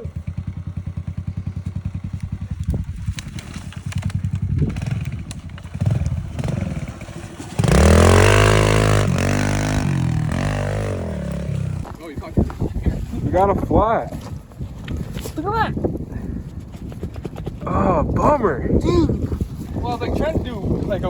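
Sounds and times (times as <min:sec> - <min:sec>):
motorbike engine revving: 0:00.0 - 0:12.0.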